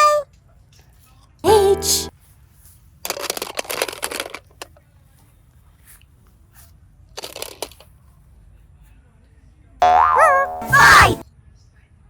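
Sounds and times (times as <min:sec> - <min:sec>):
person calling out: 0:00.0 - 0:00.2, 0:01.5 - 0:02.1, 0:09.8 - 0:11.2.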